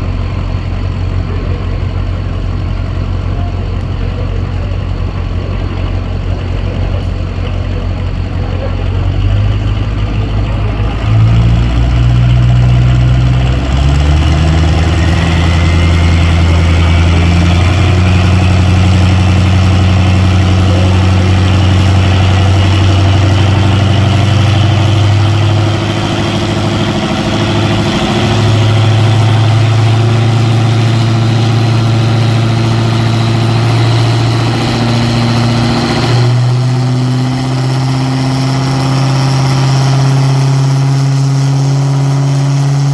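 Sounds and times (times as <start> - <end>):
truck engine running under load: 0.0 - 42.9
whine rising in pitch: 10.2 - 42.9.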